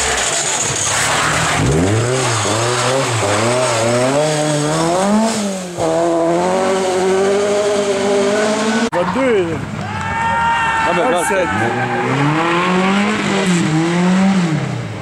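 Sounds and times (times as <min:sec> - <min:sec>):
rally car engine revving: 0:00.0 - 0:09.8, 0:11.2 - 0:15.0.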